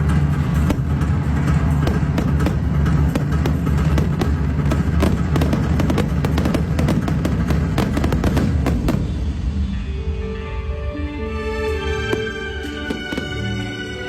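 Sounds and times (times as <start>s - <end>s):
fireworks bangs and crackles: 0.0s - 9.5s, 12.1s - 13.8s
low rumble: 0.0s - 10.8s
background music: 0.0s - 14.0s.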